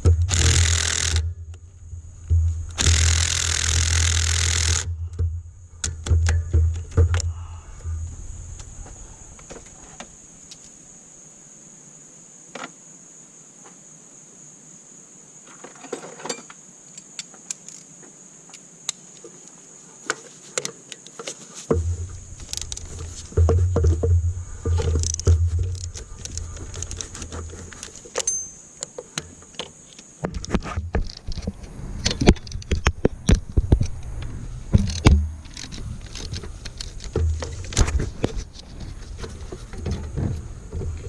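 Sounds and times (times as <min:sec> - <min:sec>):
low rumbling thumps: 0:01.3 - 0:02.9, 0:21.7 - 0:26.2
hand tools clinking: 0:24.7 - 0:29.6.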